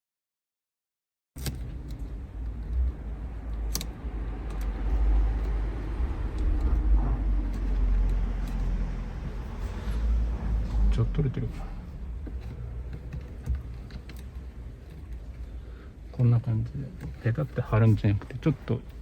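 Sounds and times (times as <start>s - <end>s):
tape clicking and rustling: 1.4s - 10.0s, 12.0s - 15.6s
low rumble: 2.6s - 13.0s.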